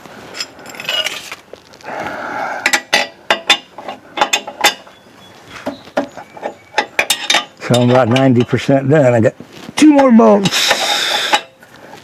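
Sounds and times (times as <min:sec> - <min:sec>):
tools scraping metal: 0:00.3 - 0:01.4, 0:02.6 - 0:05.0, 0:05.6 - 0:08.6, 0:09.8 - 0:11.6.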